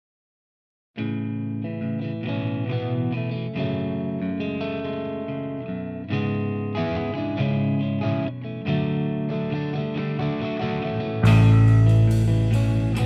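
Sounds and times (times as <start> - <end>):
distorted electric guitar chords: 1.0 - 13.0
rock band playing: 11.2 - 13.0.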